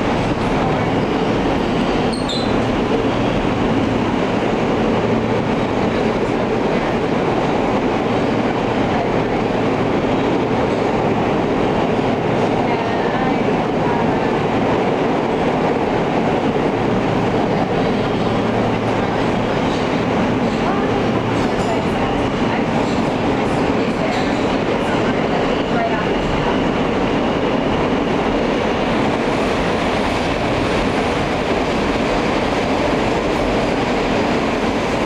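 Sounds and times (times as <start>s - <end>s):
subway car wheels rumbling and rattling: 0.0s - 35.0s.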